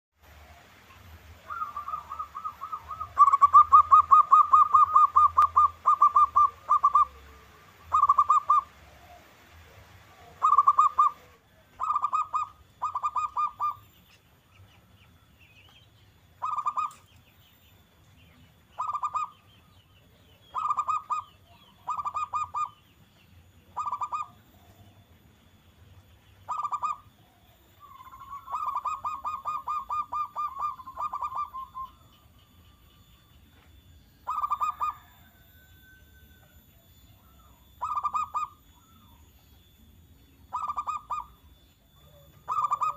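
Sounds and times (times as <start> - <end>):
dove cooing: 0.3 - 14.0, 16.4 - 17.1, 18.8 - 19.5, 20.4 - 22.8, 23.7 - 25.0, 26.4 - 32.8, 34.2 - 39.3, 40.4 - 42.9.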